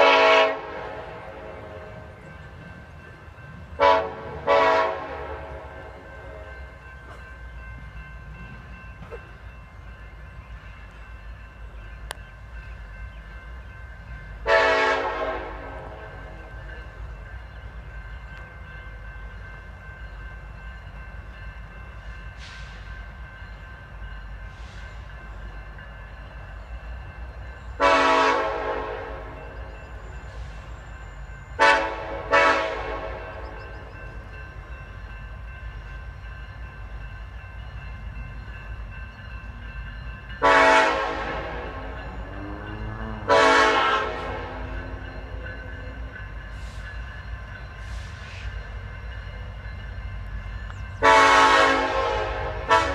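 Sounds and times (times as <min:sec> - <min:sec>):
locomotive air horn blasts: 0:00.0 - 0:02.2, 0:03.8 - 0:06.5, 0:14.4 - 0:16.4, 0:27.8 - 0:29.6, 0:31.6 - 0:33.6, 0:40.4 - 0:44.8, 0:51.0 - 0:52.9.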